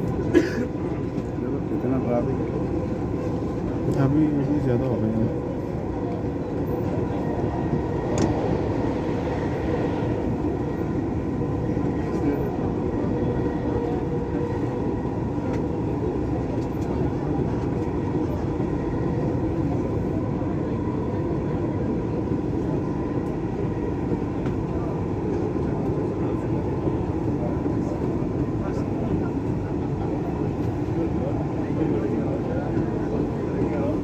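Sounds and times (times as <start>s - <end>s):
train wheels and motors rumbling: 0.0s - 34.0s.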